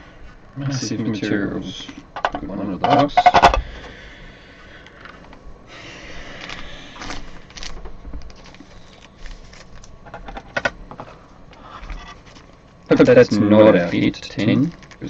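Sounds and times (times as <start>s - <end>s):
cards and packaging rustling: 6.3s - 11.2s, 11.8s - 15.0s.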